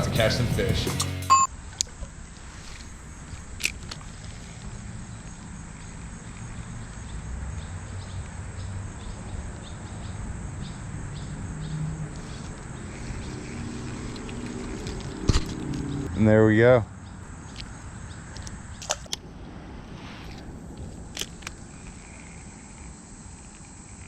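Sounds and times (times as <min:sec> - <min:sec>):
high insect drone: 0:01.5 - 0:24.0
low rumble: 0:14.4 - 0:22.9.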